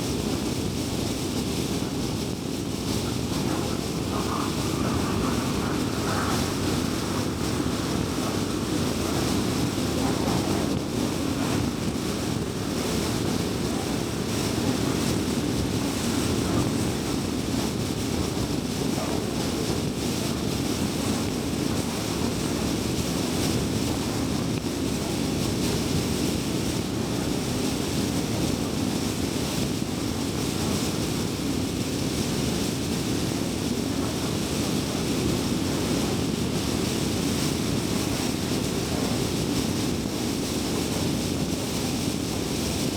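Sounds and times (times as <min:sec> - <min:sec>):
tyre and road noise: 0:01.4 - 0:25.0.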